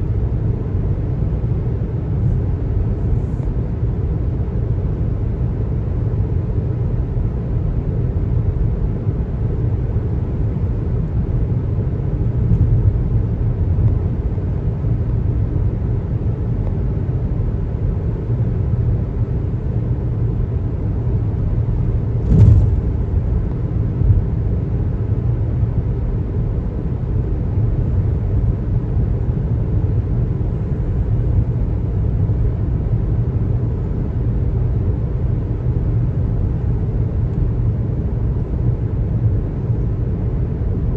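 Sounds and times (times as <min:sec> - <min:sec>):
road and tyre rumble: 0:00.0 - 0:40.9
sharp knock: 0:22.2 - 0:23.4.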